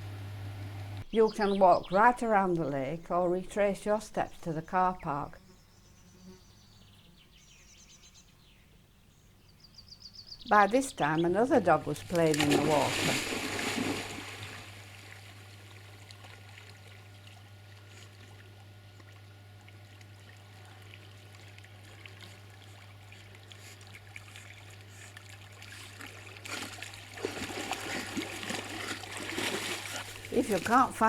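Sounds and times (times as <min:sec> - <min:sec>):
dog splashing in water: 0:12.1 - 0:15.1, 0:23.5 - 0:31.0.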